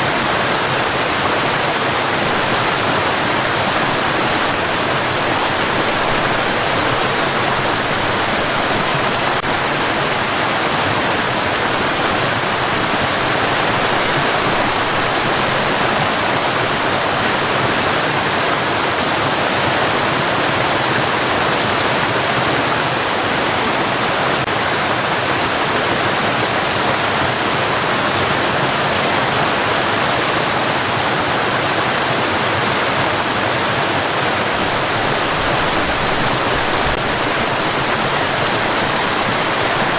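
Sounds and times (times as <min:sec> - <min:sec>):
white noise hiss: 0:34.3 - 0:39.9.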